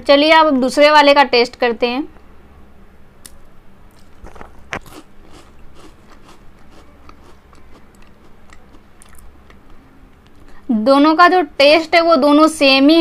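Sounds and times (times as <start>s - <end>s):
biscuit crunching: 3.2s - 10.5s
chewing crunchy biscuit: 3.9s - 10.5s.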